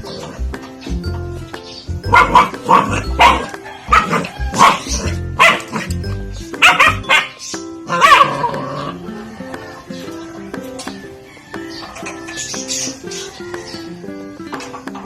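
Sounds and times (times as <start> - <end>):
background music: 0.0 - 15.0
puppy barking: 2.1 - 6.0, 6.6 - 9.0.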